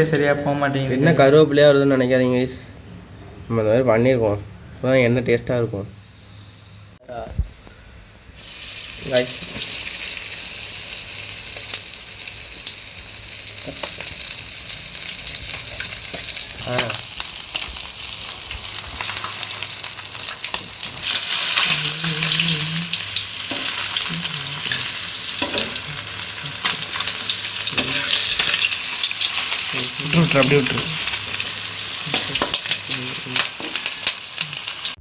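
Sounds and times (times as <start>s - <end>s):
chicken deep-frying in oil: 8.4s - 35.0s.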